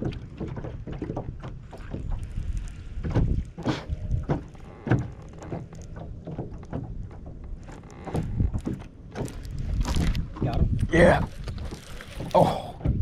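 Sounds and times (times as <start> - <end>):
wind rumble on microphone: 0.0 - 13.0
knocks against boat hull: 3.0 - 10.8.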